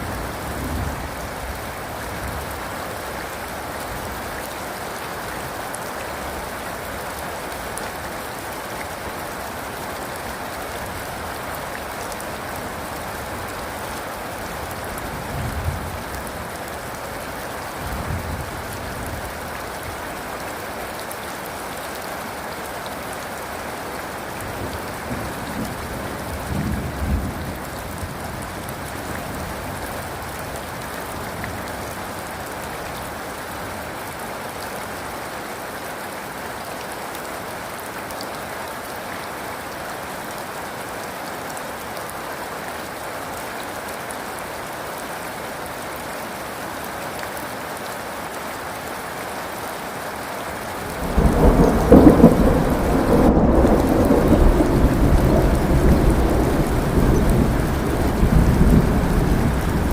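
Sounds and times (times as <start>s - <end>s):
steady rain: 0.0s - 59.9s
low rumbles of thunder: 51.0s - 59.9s.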